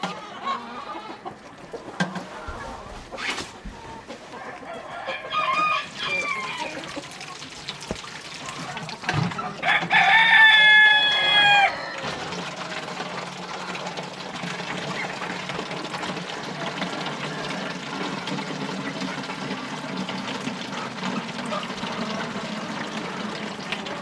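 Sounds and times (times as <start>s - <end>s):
farmyard background: 0.0s - 24.0s
rooster crowing: 1.3s - 6.8s, 9.6s - 12.5s.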